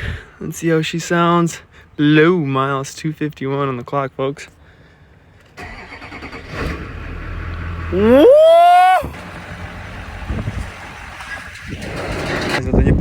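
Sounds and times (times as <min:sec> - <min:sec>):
car engine starting and revving: 0:05.6 - 0:08.3.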